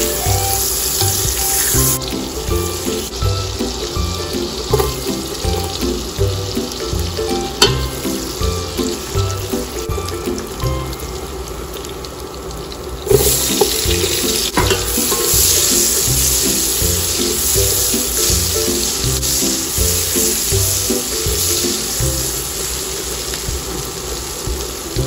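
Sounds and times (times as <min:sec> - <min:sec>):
background music: 0:00.0 - 0:11.3, 0:13.1 - 0:22.6
onions sizzling in pot: 0:00.0 - 0:25.0
spoon clinking against pot: 0:14.6 - 0:15.7.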